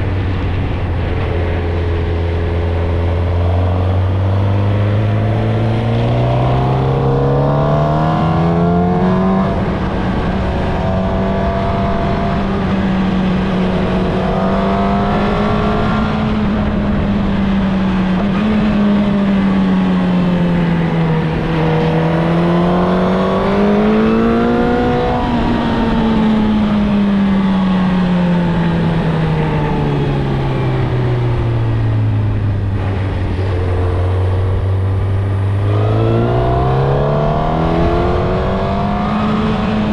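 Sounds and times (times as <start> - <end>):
motorcycle engine under load: 11.8 - 39.9
rushing noise: 29.3 - 39.9.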